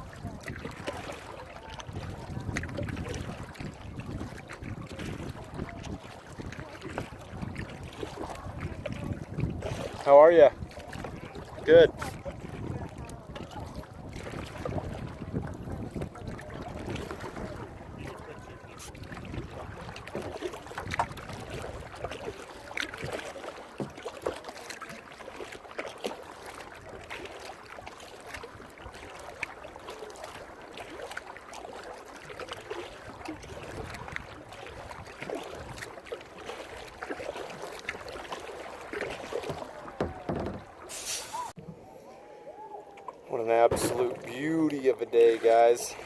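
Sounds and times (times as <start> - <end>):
water dripping off paddle: 0.0 - 41.8
paddle dipping into water: 0.0 - 46.0
hiss of wind and water: 26.4 - 46.0.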